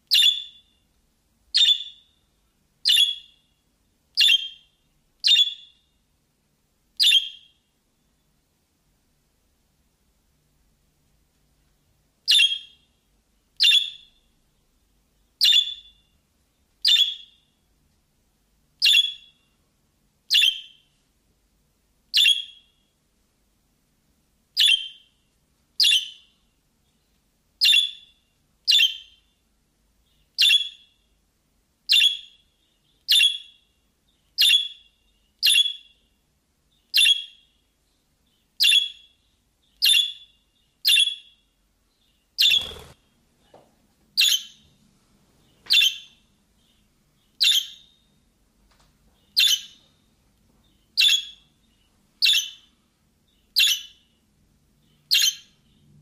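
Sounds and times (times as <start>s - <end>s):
sharp bird chirp: 0.1s - 0.8s, 1.6s - 2.2s, 2.8s - 3.5s, 4.2s - 5.8s, 7.0s - 7.5s, 12.3s - 12.8s, 13.6s - 14.2s, 15.4s - 16.1s, 16.8s - 17.4s, 18.8s - 19.4s, 20.3s - 20.8s, 22.2s - 22.8s, 24.6s - 25.1s, 27.6s - 29.2s, 30.1s - 31.0s, 31.9s - 33.7s, 34.4s - 36.0s, 36.9s - 37.6s, 38.6s - 41.4s, 42.4s - 43.0s, 45.7s - 48.0s, 49.2s - 49.8s, 51.0s - 51.5s, 52.2s - 52.7s, 53.5s - 54.2s, 54.9s - 55.8s.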